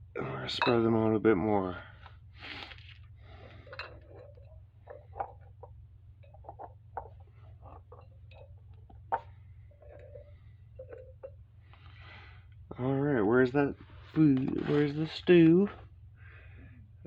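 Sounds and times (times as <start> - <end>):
steady low hum: 0.0 - 17.0
metal tea-light candles clinking: 6.2 - 11.4.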